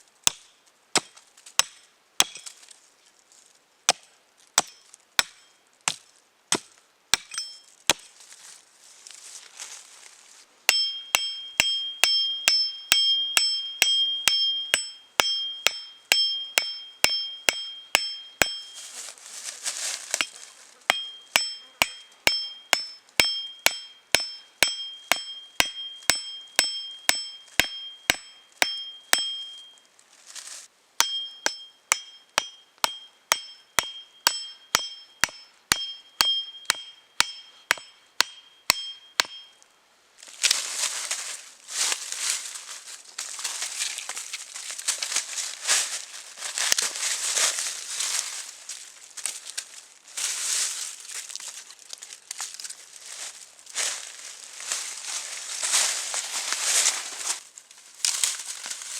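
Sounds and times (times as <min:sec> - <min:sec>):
hammer striking metal: 0:00.3 - 0:02.4, 0:04.6 - 0:05.5, 0:07.2 - 0:08.0, 0:10.7 - 0:18.8, 0:20.9 - 0:29.7, 0:31.0 - 0:39.6
rustling: 0:02.4 - 0:03.6, 0:07.6 - 0:10.6, 0:18.6 - 0:20.9, 0:29.7 - 0:30.7, 0:40.2 - 0:58.9.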